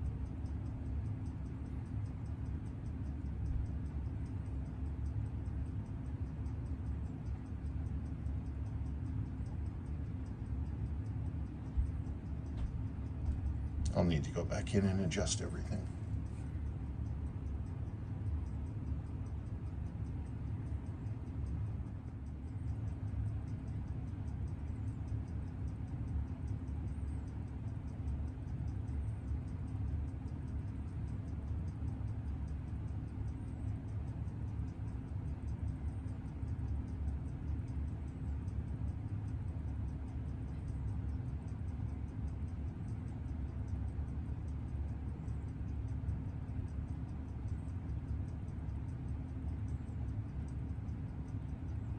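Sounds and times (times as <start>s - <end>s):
steady low hum: 0.0s - 51.9s
watch movement ticking fast: 0.0s - 51.9s.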